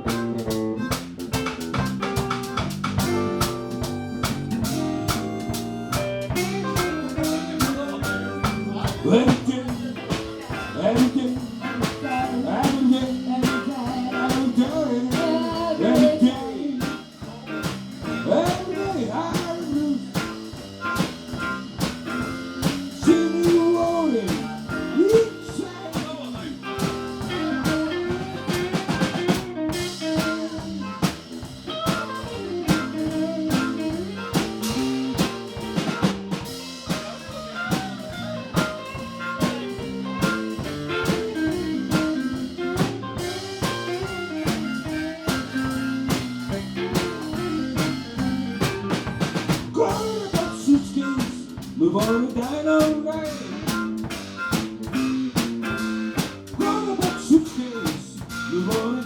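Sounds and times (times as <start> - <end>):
blues guitar lead: 0.0 - 59.0
drum kit beat: 0.0 - 59.0.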